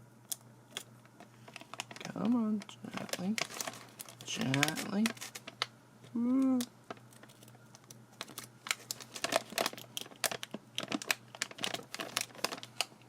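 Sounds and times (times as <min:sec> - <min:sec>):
chip bag crinkling: 0:01.1 - 0:05.7, 0:06.9 - 0:13.0.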